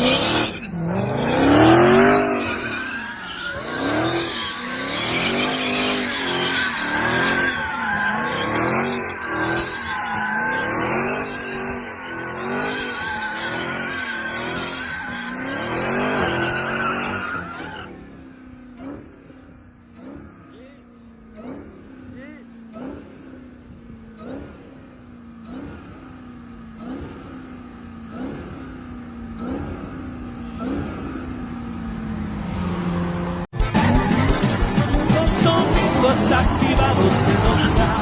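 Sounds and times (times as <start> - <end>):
tyres squealing: 0.0 - 17.9, 33.6 - 38.0
car engine revving: 0.0 - 38.0.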